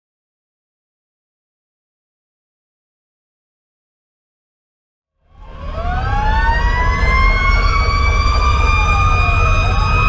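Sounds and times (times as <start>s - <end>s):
mechanical siren wailing: 5.2s - 10.0s
diesel engine rumbling: 5.3s - 10.0s
electronic siren sweeping: 5.3s - 10.0s
fast pulsing siren tone: 5.3s - 10.0s.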